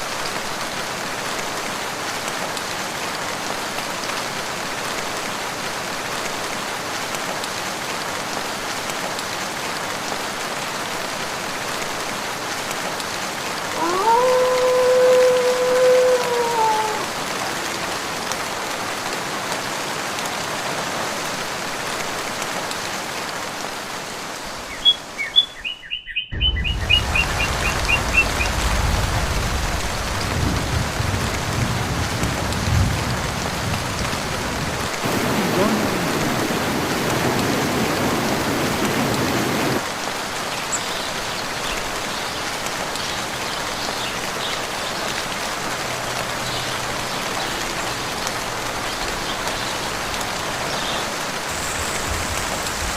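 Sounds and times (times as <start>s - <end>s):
steady rain falling: 0.0s - 52.9s
bird chirping: 24.7s - 28.5s
deep rumble: 26.3s - 32.2s.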